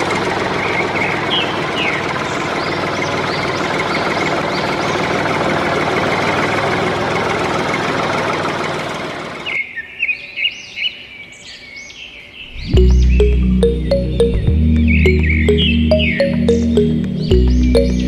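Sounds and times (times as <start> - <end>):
birds chirping: 9.6 - 18.0.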